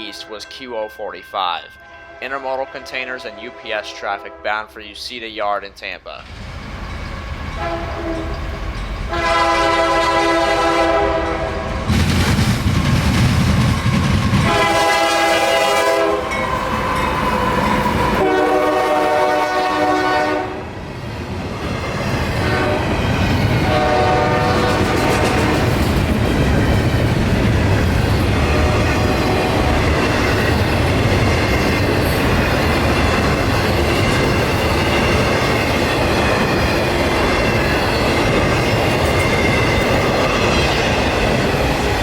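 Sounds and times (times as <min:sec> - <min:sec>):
train rumbling: 0:00.0 - 0:42.0
locomotive air horn blasts: 0:03.2 - 0:04.6, 0:07.6 - 0:08.3, 0:09.1 - 0:11.7, 0:14.4 - 0:20.6, 0:22.4 - 0:22.9, 0:23.6 - 0:25.7, 0:28.5 - 0:29.8
rail clatter: 0:11.2 - 0:18.3, 0:21.7 - 0:42.0.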